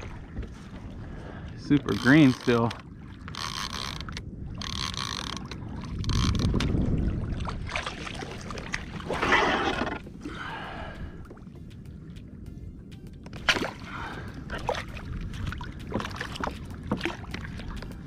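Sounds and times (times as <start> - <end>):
low rumble of wind: 0.0 - 18.0
water splashing and sloshing: 0.0 - 18.0.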